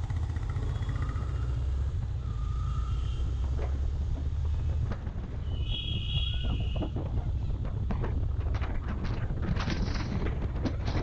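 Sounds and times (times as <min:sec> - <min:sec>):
motorcycle running: 0:00.0 - 0:11.0
wind buffeting microphone: 0:03.7 - 0:11.0.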